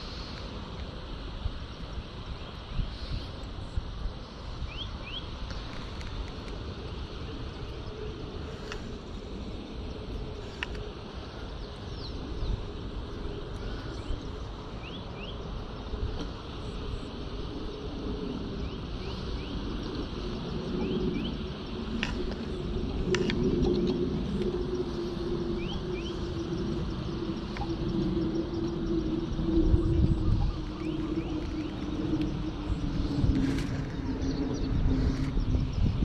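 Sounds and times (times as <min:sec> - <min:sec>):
steady low hum: 0:00.0 - 0:36.0
low rumble: 0:17.7 - 0:36.0.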